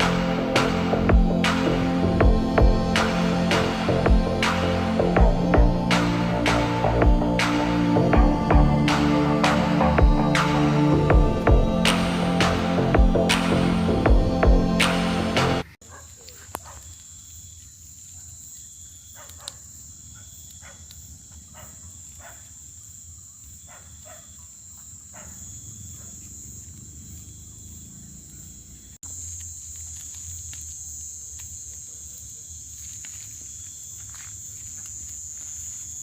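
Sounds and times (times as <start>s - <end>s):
low rumble: 0.0s - 15.6s
insects chirring: 0.0s - 36.0s.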